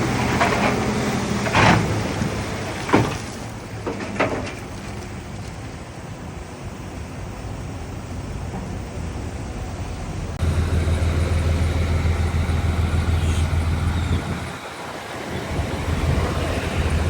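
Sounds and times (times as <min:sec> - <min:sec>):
heavy diesel engine rumbling: 0:00.0 - 0:17.0.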